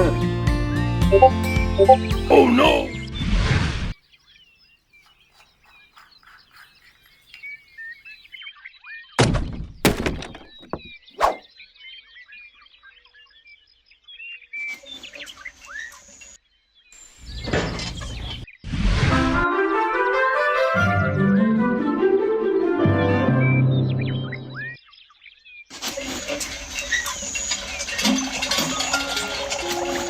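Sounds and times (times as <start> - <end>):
small birds chirping: 3.9 - 9.1, 10.5 - 18.7.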